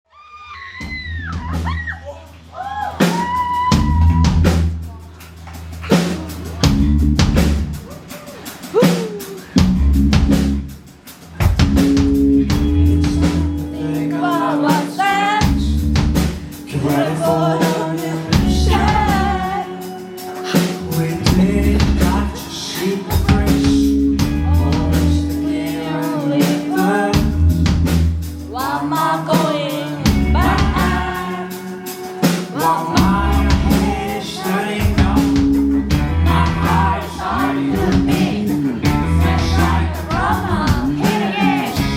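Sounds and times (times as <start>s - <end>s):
rock band playing live: 0.7s - 41.9s
lead singer singing: 12.8s - 27.6s, 28.3s - 41.9s.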